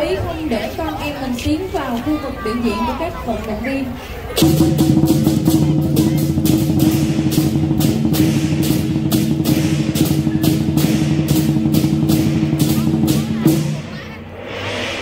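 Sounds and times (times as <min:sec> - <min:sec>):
big drum beating fast: 0:04.4 - 0:15.0
crashing cymbals: 0:04.4 - 0:15.0.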